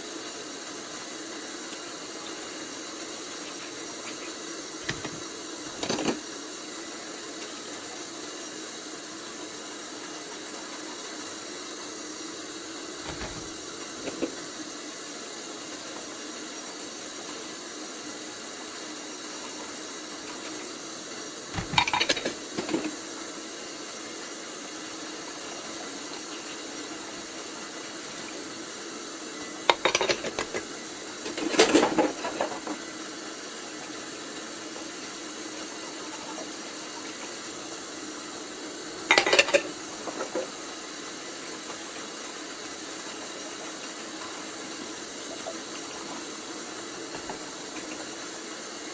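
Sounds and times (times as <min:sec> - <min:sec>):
dishes clinking in sink: 0:04.8 - 0:06.2, 0:13.0 - 0:14.5, 0:21.5 - 0:23.0, 0:29.7 - 0:32.8, 0:39.1 - 0:40.6, 0:47.1 - 0:48.2.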